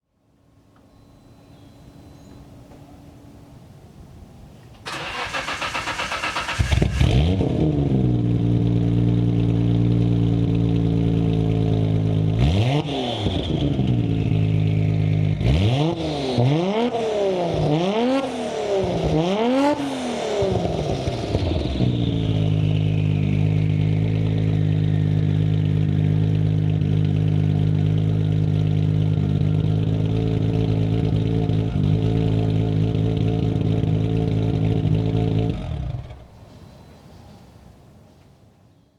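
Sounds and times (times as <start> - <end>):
starter motor cranking: 4.9 - 7.0
car engine idling with rev blips: 4.9 - 36.3.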